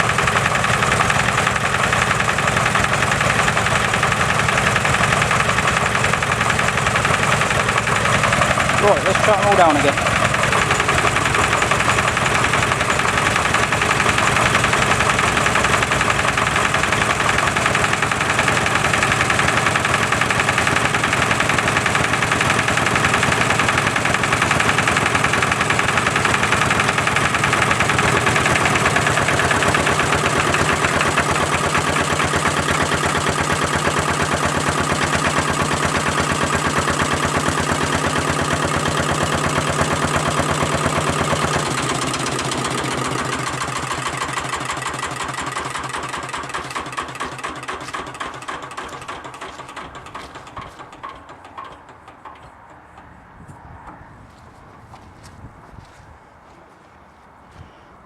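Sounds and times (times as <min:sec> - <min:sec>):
stationary diesel engines knocking: 0:00.0 - 0:54.2.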